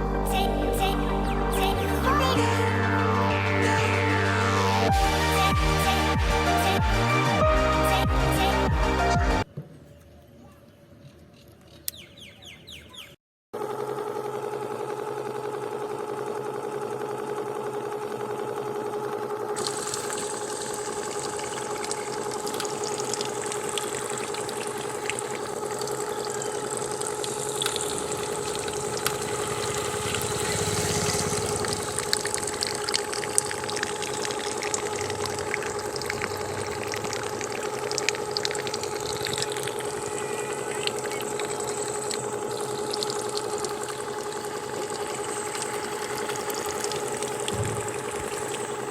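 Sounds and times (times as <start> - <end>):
electric water pump whining: 13.6 - 48.9
water hissing and splashing: 19.6 - 48.9.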